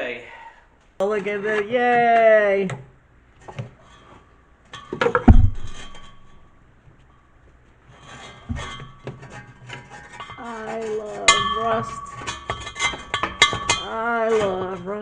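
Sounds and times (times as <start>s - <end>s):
hard objects clinking and clattering: 8.2s - 15.0s.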